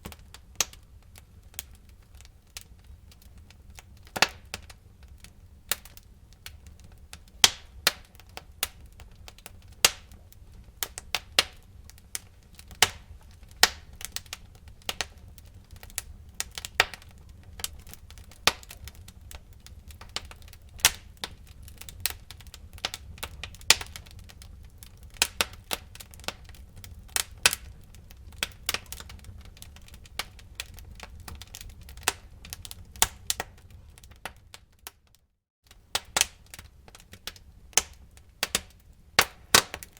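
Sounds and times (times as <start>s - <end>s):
low rumble of flames: 0.0s - 35.0s, 35.7s - 39.9s
wood fire crackling: 0.0s - 39.9s
logs popping and snapping: 37.8s - 39.9s.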